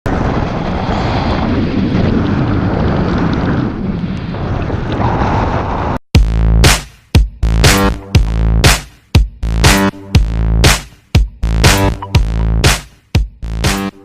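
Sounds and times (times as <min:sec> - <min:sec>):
wind blowing across microphone: 0:00.1 - 0:06.0
electronic music with heavy bass: 0:06.2 - 0:14.0.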